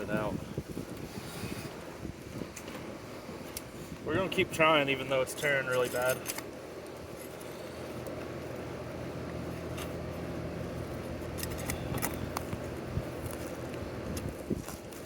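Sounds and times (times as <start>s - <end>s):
steady low rumble: 0.0s - 15.0s
shingle tearing clicks: 5.6s - 7.4s.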